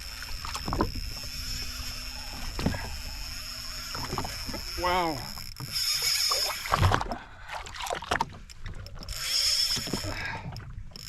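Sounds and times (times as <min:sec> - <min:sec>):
fishing reel whining: 0:00.0 - 0:07.0, 0:08.5 - 0:11.0
water splashing: 0:00.0 - 0:10.5.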